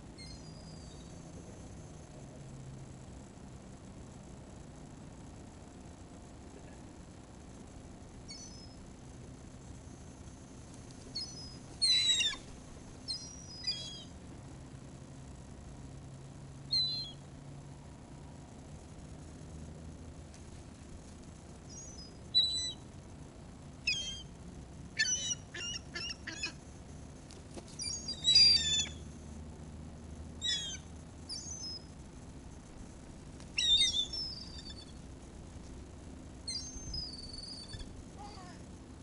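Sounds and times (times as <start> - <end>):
gulls calling: 11.1 - 14.2, 23.8 - 24.4, 25.0 - 26.6, 27.8 - 29.1, 30.4 - 31.9, 33.5 - 35.0, 36.4 - 38.6.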